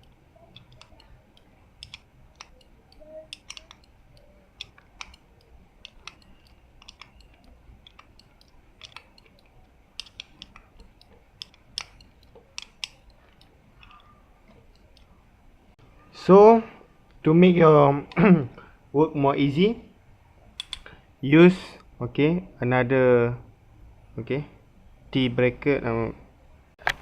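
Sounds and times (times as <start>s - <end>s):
spanner clicking on nuts: 0.0s - 15.1s.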